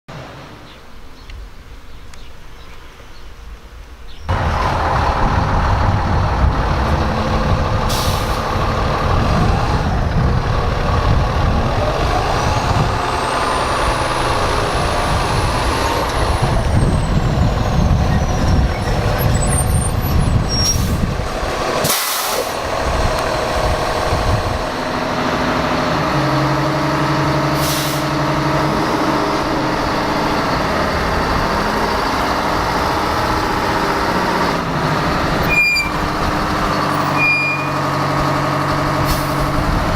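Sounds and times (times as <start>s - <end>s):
diesel fire engines running: 4.3s - 39.9s
air brakes hissing: 7.9s - 8.6s, 21.8s - 22.6s, 27.5s - 28.2s.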